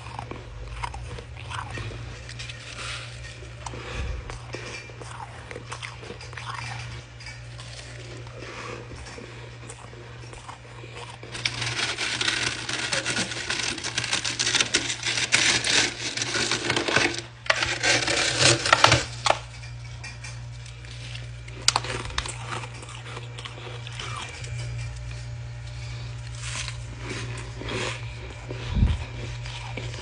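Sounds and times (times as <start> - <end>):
ice crunching: 10.8 - 19.4.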